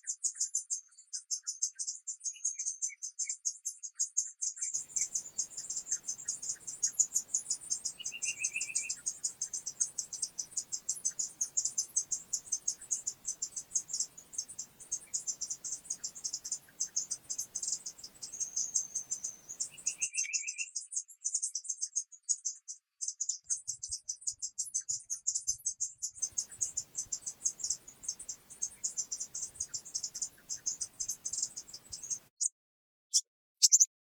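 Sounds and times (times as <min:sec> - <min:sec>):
crickets chirping: 0:04.8 - 0:20.0, 0:26.2 - 0:32.3.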